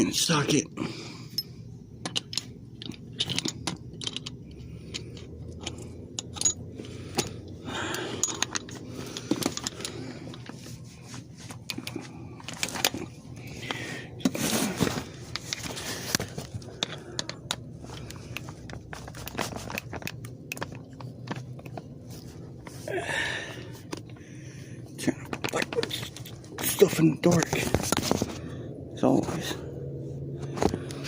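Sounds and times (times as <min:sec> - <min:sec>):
metal hand tools clinking: 0:01.3 - 0:10.4
scraping or shuffling: 0:08.4 - 0:22.9, 0:25.2 - 0:28.5.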